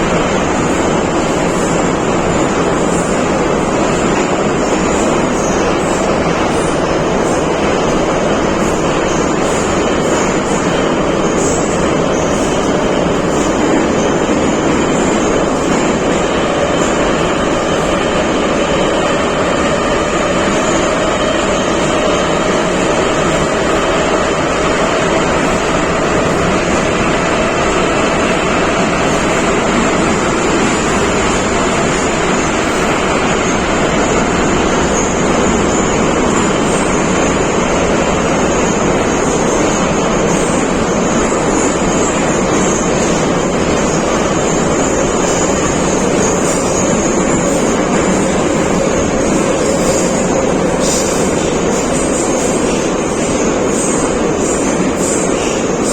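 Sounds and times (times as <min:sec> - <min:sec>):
metro train rumbling in tunnel: 0:00.0 - 0:55.9.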